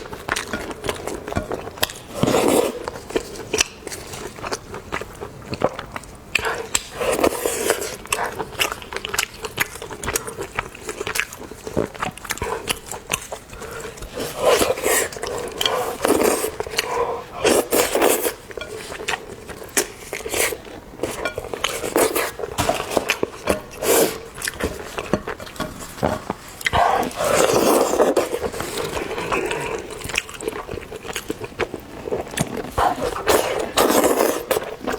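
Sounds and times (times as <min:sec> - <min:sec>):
wet chewing and biting: 0:21.6 - 0:34.9.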